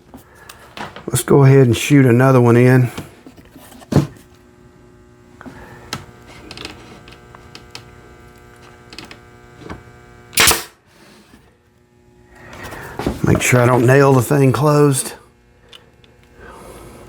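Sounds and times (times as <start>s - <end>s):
steady hum: 0.0s - 17.0s
nail gun shots: 10.4s - 10.8s.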